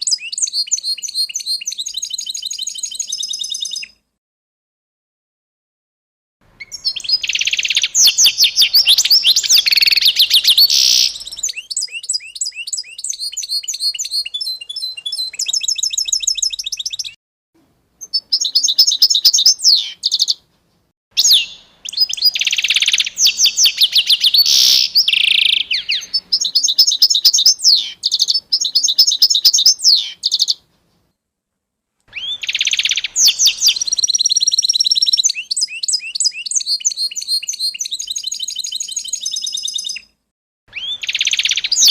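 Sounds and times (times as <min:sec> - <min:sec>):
songbird trilling and chirping: 0:00.0 - 0:04.0, 0:06.6 - 0:17.2, 0:18.0 - 0:20.4, 0:21.2 - 0:30.6, 0:32.1 - 0:40.1, 0:40.7 - 0:41.9.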